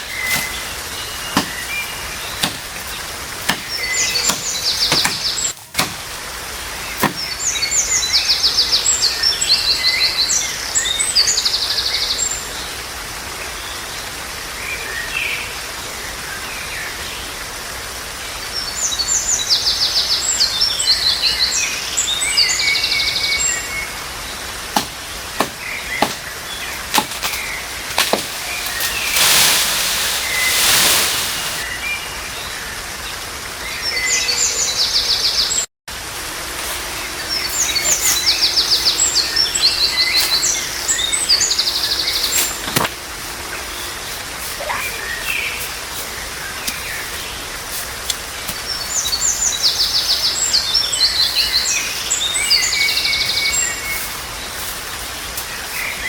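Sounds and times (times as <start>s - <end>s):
songbirds trilling: 0.0s - 11.4s, 20.8s - 35.6s, 36.8s - 56.0s
sharp knocks: 1.4s - 1.7s, 2.4s - 2.7s, 3.4s - 6.1s, 7.0s - 7.3s, 24.8s - 26.3s, 26.9s - 29.3s.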